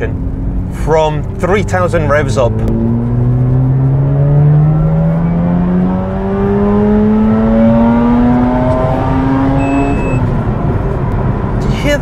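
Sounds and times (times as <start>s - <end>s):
rotary engine revving from inside car: 2.3s - 10.3s.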